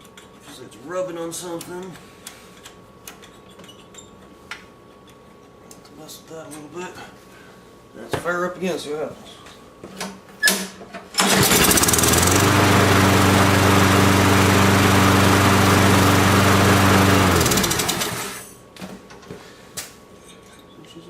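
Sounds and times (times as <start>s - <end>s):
lawn mower engine running: 11.2s - 18.4s.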